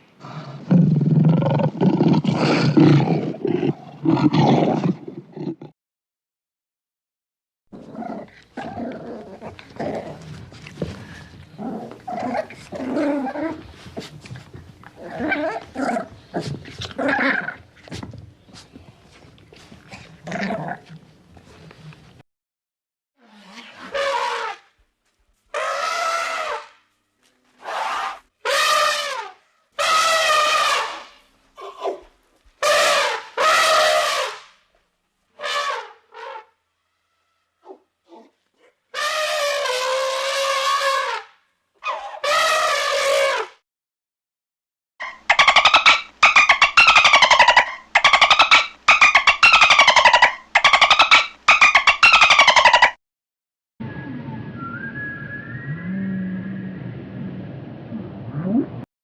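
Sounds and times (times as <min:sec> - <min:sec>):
dog growling: 0:07.8 - 0:10.4, 0:11.1 - 0:14.2, 0:15.0 - 0:17.6, 0:19.9 - 0:21.0
pitched animal calls: 0:45.0 - 0:53.0.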